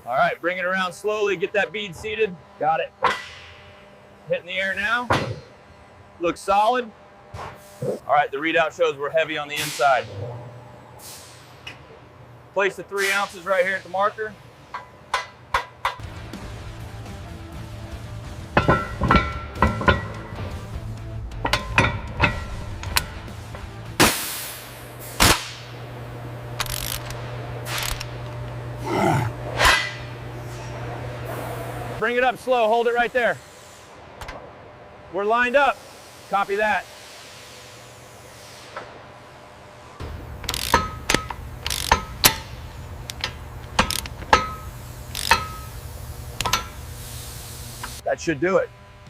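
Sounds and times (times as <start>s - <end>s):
steady low hum: 0.0s - 49.0s
short hissing bursts: 11.0s - 11.6s, 33.1s - 34.0s, 35.7s - 38.8s, 46.8s - 48.0s
metal tools clanking on steel: 18.6s - 20.5s, 21.4s - 23.2s, 40.4s - 45.8s, 46.4s - 46.9s.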